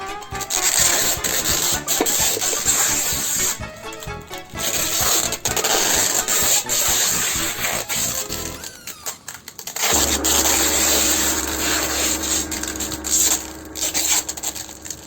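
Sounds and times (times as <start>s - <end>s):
rubbing and clicks: 4.6s - 15.0s
machine motor rasping: 4.7s - 15.0s.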